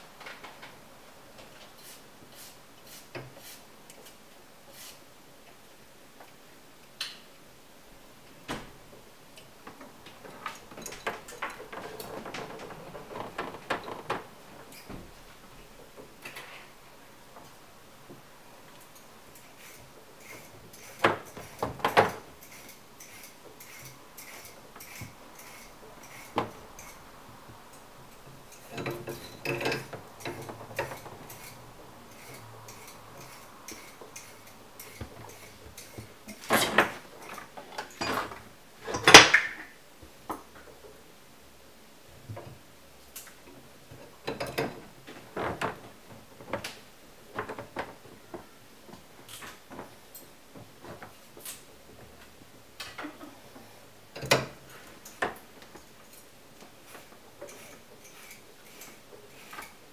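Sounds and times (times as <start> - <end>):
metallic clanks of tools: 28.1 - 39.5.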